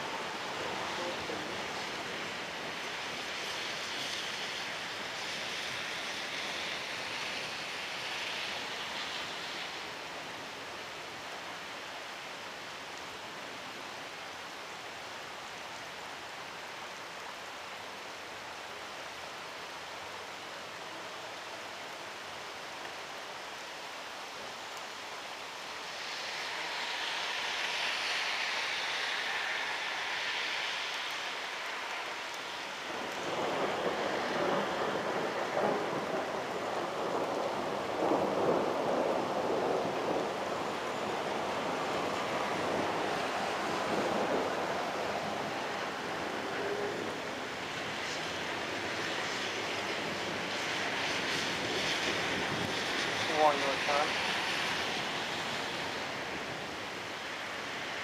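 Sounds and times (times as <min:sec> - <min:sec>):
heavy rain falling: 0:00.0 - 0:58.0
thunder rumbling: 0:32.9 - 0:56.7.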